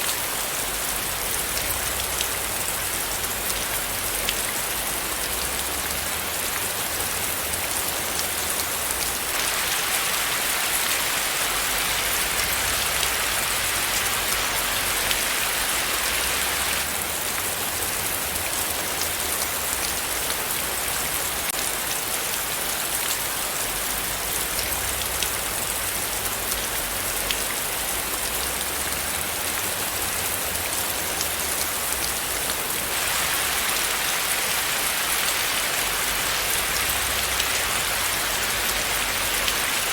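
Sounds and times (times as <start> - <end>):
raindrops ticking on a surface: 0.0 - 39.9
steady rain hiss: 0.0 - 39.9.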